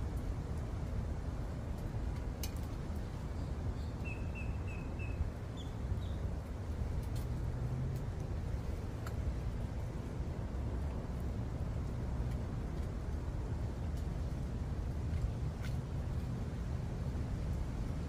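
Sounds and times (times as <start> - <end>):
bird chirping: 3.4 - 6.2.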